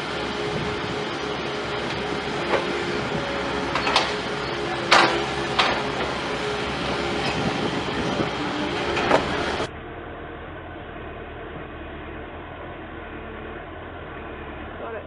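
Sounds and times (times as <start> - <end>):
heavy machinery running: 0.0 - 15.0
sharp metallic clanks: 3.7 - 6.2.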